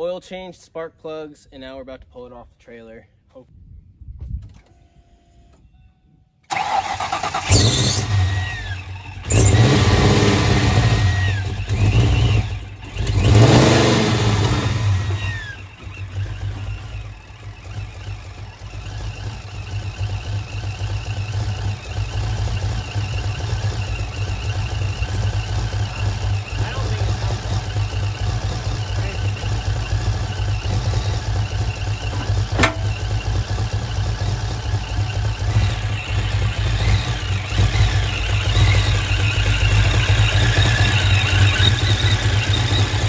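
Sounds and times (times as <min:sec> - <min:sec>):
car engine starting and revving: 0:06.5 - 0:43.0
supercharger whine: 0:06.6 - 0:43.0.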